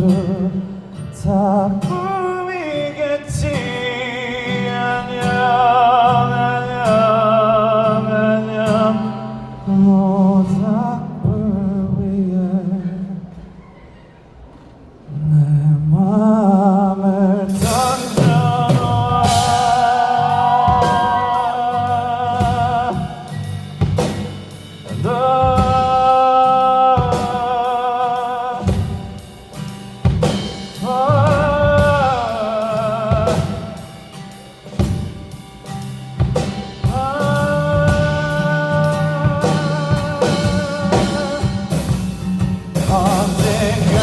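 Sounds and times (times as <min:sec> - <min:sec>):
man singing long notes: 0:15.1 - 0:24.0, 0:24.8 - 0:29.2, 0:30.7 - 0:34.2, 0:36.8 - 0:44.0
bass and guitar: 0:17.5 - 0:44.0
drum kit beat: 0:17.5 - 0:44.0.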